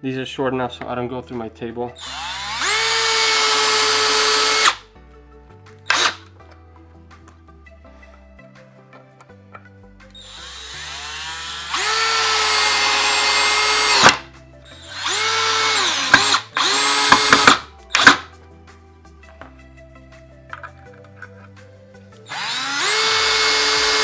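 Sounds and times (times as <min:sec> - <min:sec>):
cordless drill driving screw into wood: 0:02.0 - 0:04.8, 0:05.9 - 0:06.3, 0:10.2 - 0:18.3, 0:22.3 - 0:24.0.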